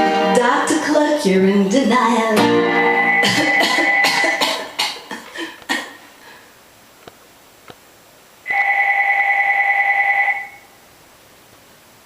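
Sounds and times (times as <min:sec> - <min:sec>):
guitar strum: 0:02.3 - 0:04.8
telephone ringing: 0:02.7 - 0:04.4, 0:08.5 - 0:10.7.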